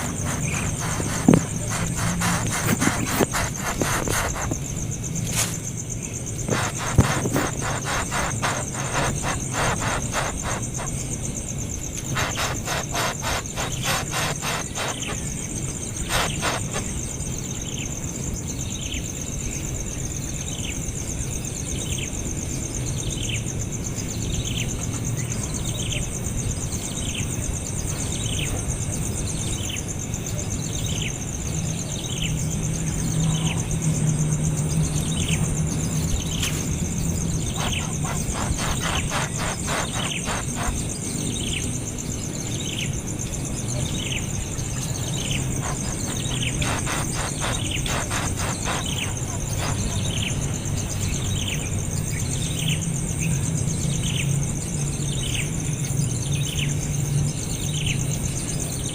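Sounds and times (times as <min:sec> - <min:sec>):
baby bird chirping: 0:06.5 - 0:10.9, 0:12.1 - 0:15.2, 0:37.4 - 0:40.8, 0:44.9 - 0:50.4.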